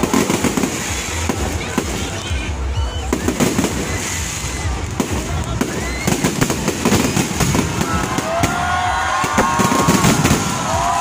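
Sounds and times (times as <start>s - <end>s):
fireworks low rumbling bangs: 0.0s - 11.0s
fireworks popping and crackling: 0.0s - 11.0s.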